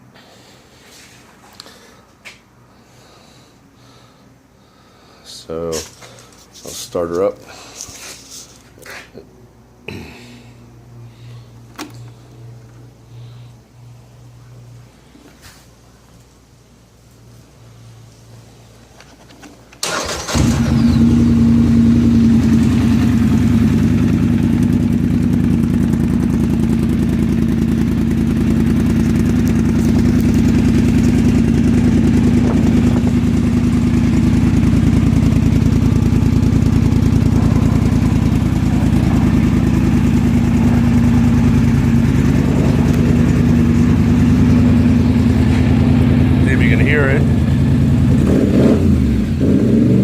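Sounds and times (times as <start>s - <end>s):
starter cranking engine: 19.8s - 21.2s
atv engine idling: 19.8s - 49.2s.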